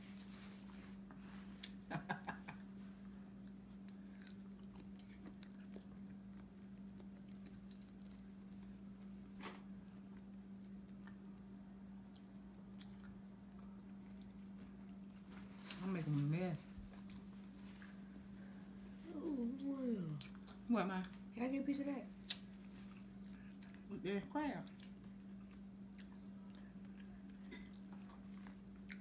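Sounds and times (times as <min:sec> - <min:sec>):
soft chewing: 0:00.0 - 0:29.0.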